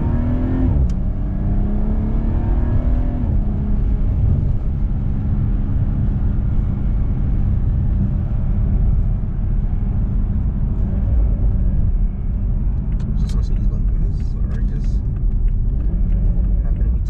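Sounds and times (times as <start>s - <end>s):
car engine from inside cabin: 0.0s - 17.0s
road rumble: 0.0s - 17.0s.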